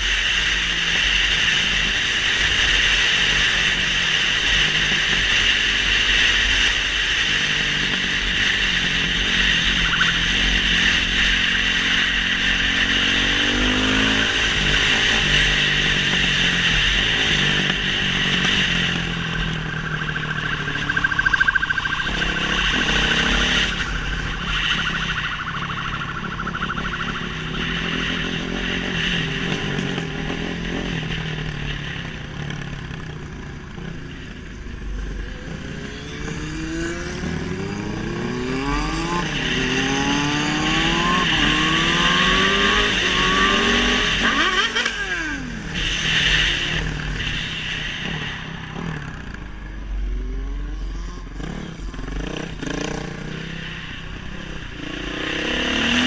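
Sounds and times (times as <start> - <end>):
motorcycle engine running: 0.0 - 39.5
steady rushing noise: 0.0 - 50.1, 51.1 - 56.0.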